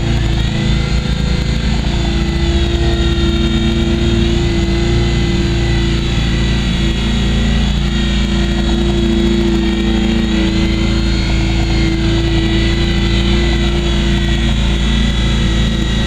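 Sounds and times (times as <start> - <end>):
small rc helicopter whine: 0.0 - 16.0.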